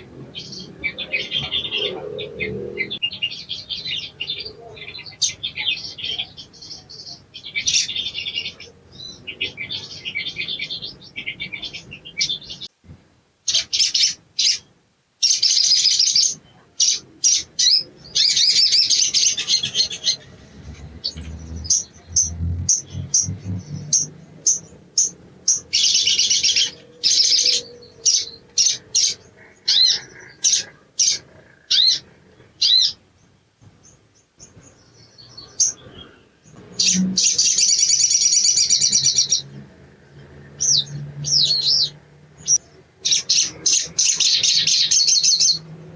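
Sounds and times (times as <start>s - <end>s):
bird chirping rapidly: 15.2s - 32.0s.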